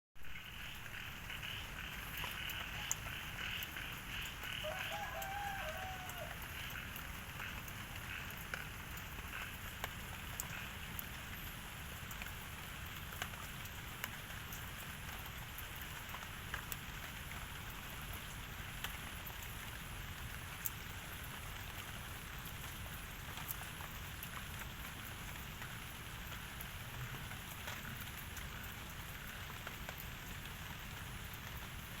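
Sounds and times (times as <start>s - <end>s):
steady outdoor hiss: 0.2s - 32.0s
light ticks: 2.1s - 4.4s.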